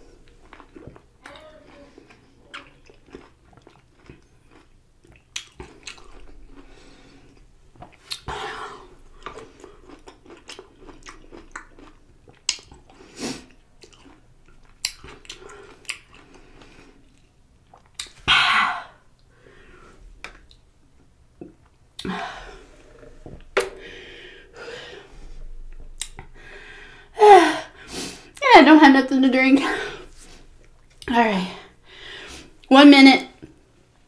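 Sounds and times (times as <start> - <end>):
chewing a juicy pickle: 0.3 - 8.3, 9.1 - 18.2
wet mouth clicks: 12.4 - 12.9, 17.1 - 18.2, 25.7 - 26.4.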